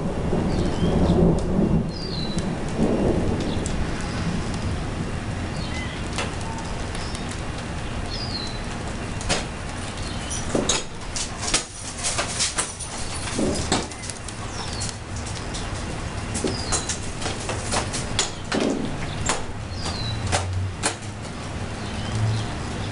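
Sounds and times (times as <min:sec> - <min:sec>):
thunder rumble: 0:00.0 - 0:10.0
bird chirps: 0:08.1 - 0:08.7.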